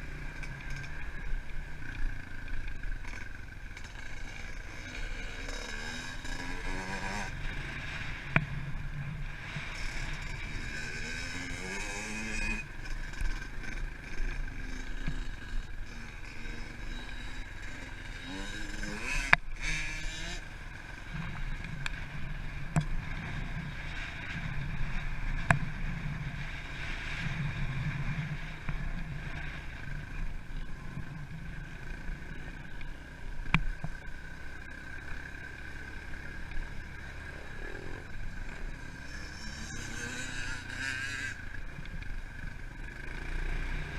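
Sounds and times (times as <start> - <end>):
motorbike engine revving: 0.0 - 43.9.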